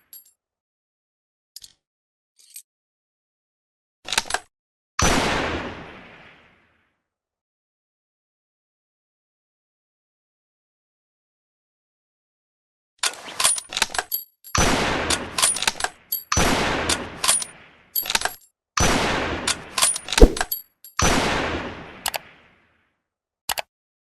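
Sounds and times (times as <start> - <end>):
rifle shots: 20.2 - 20.5.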